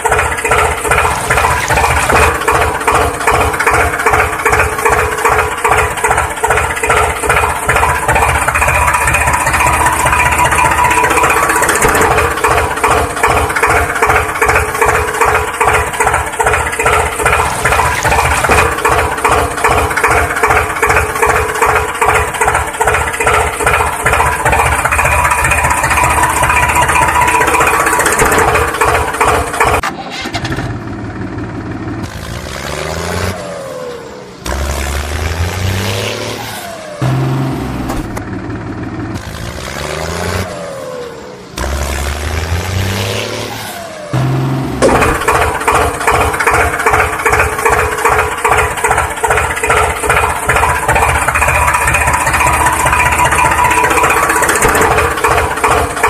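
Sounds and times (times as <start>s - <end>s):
tractor engine chugging: 0.0s - 32.6s, 44.2s - 56.0s.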